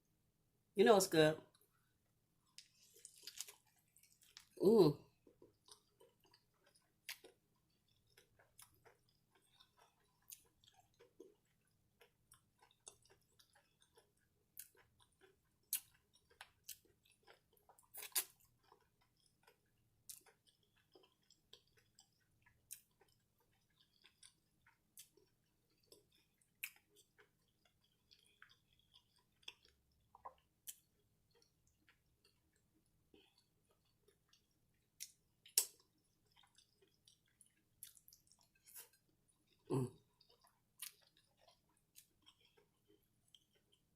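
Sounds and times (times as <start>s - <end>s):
chewing crunchy food: 1.5s - 43.9s
wet mouth clicks: 35.0s - 35.8s.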